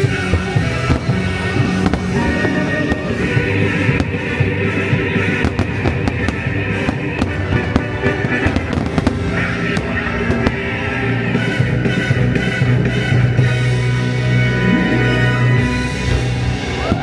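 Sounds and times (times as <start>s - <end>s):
fireworks bangs: 0.0s - 13.6s
orchestral music: 0.0s - 17.0s.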